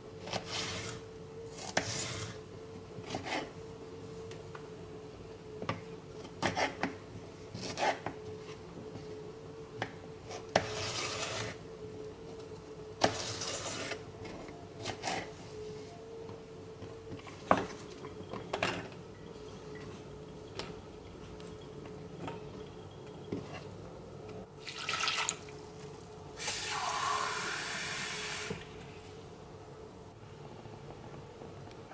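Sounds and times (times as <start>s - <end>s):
faint steady hum: 0.0s - 31.9s.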